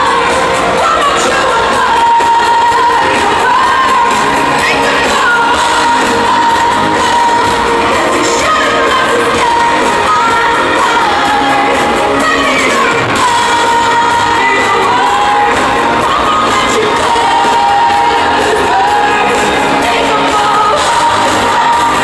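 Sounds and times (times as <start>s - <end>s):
live pop song with band: 0.0s - 22.0s
woman singing: 0.0s - 22.0s.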